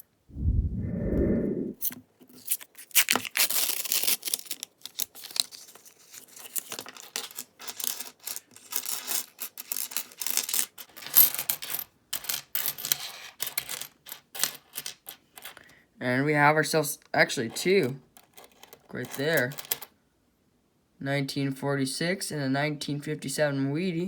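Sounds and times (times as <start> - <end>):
coins clinking and sliding: 7.0 - 15.6.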